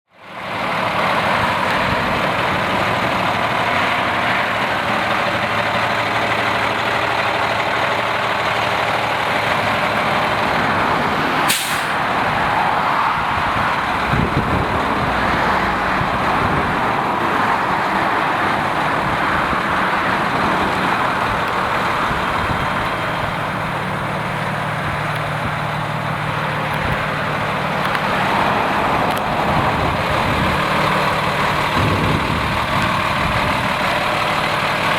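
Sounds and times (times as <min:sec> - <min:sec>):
truck diesel engine running: 0:00.2 - 0:34.9
air brake hiss: 0:11.5 - 0:12.0.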